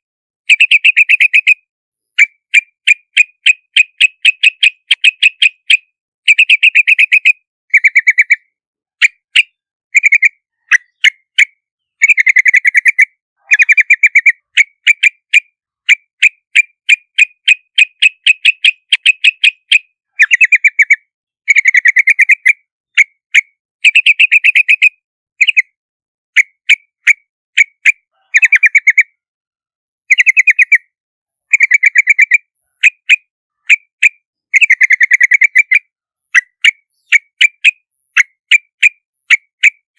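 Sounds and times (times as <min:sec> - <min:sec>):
bird chattering trills and chirps: 0:00.4 - 0:29.2, 0:30.1 - 0:30.9, 0:31.5 - 0:39.9.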